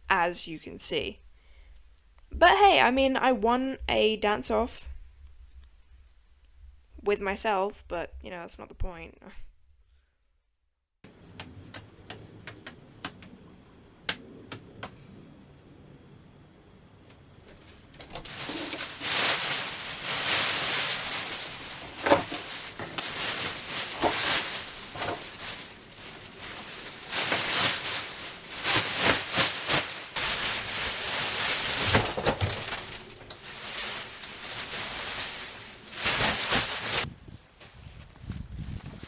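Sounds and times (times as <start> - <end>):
panels scraping and tearing: 18.1 - 37.1.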